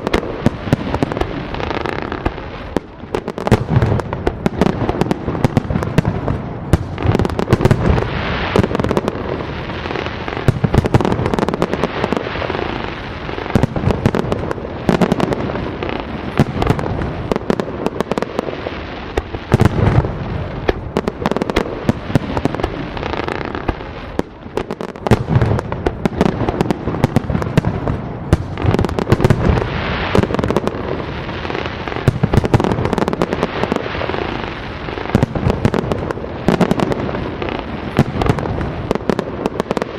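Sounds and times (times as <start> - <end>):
firework bursts and crackling: 0.0 - 39.9.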